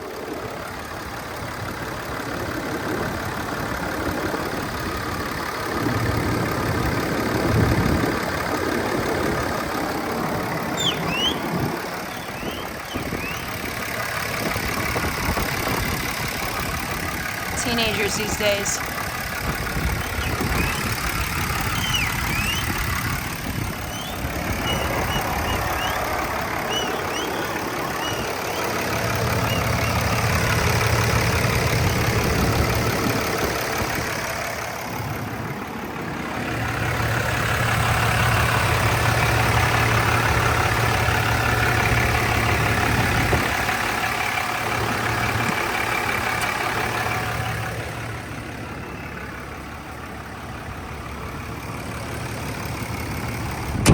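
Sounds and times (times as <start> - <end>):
diesel engine idling: 0.0 - 53.9
faint high chirps: 10.7 - 11.5, 12.1 - 13.6, 23.9 - 28.8.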